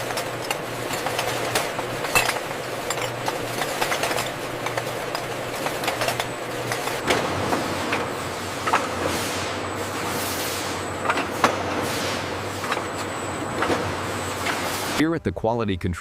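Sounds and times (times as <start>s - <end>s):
glass jars clinking: 0.0s - 7.0s
machine hum: 0.0s - 15.4s.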